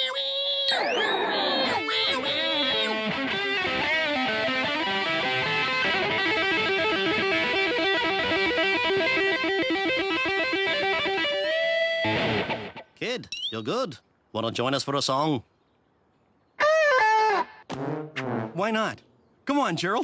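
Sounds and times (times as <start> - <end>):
electric guitar solo: 1.6 - 12.8.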